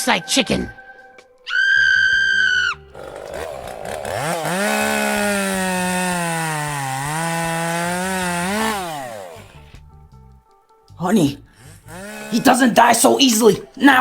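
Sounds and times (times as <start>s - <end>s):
chainsaw engine revving: 2.8s - 9.8s, 11.6s - 13.8s.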